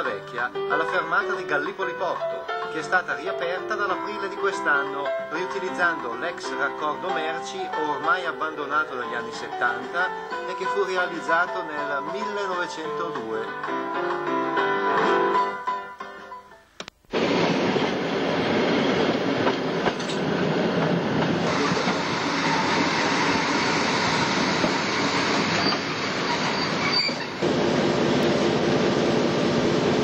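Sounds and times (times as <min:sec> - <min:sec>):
railcar wheels rumbling: 0:17.1 - 0:30.0
high wheel squeal: 0:21.4 - 0:27.5.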